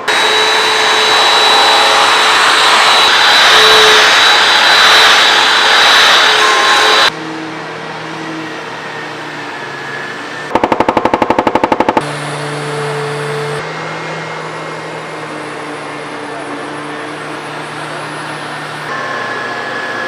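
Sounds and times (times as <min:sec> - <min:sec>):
machine blowing noise: 0:09.8 - 0:13.7
fast rattle of clicks: 0:10.5 - 0:12.0.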